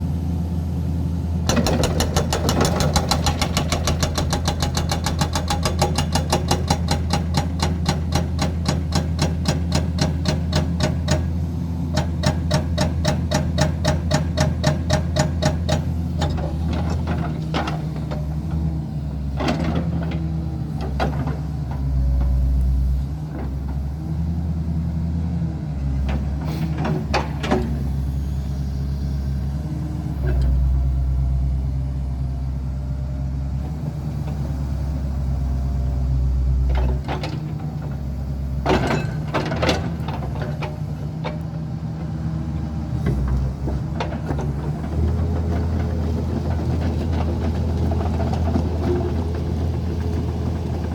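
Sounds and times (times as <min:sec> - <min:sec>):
excavator diesel engine running: 0:00.0 - 0:50.9
engine clatter: 0:01.4 - 0:11.3, 0:36.5 - 0:50.9
engine knocks: 0:01.4 - 0:11.3.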